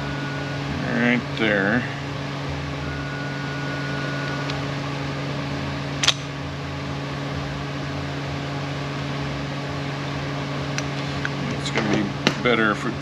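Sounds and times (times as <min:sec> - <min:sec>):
mechanical hum: 0:00.0 - 0:13.0
sharp metallic click: 0:06.0 - 0:06.3.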